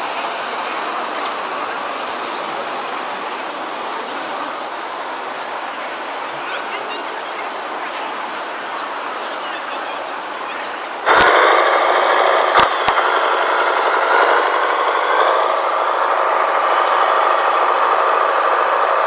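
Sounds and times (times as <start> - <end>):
electric motor and gearbox whirring: 11.1 - 19.0
sharp clicks: 11.1 - 19.0.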